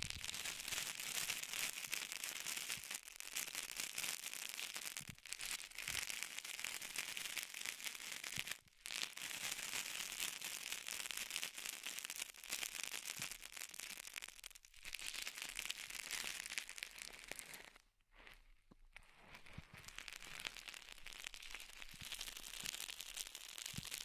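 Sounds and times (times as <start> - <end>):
close crackling and rustling: 13.2 - 24.0.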